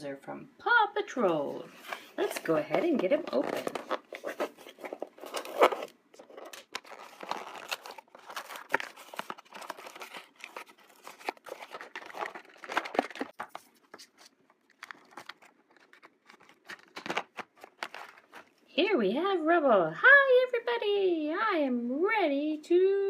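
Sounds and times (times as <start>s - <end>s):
packaging crinkling and tearing: 1.9s - 18.6s.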